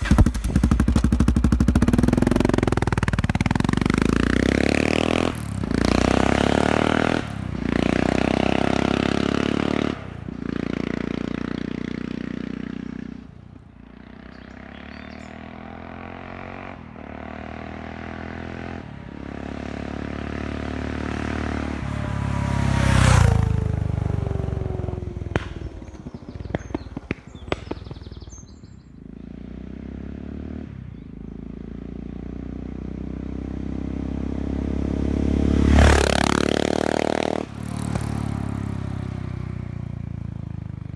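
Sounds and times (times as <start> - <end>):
motorcycle engine passing: 0.0 - 40.9.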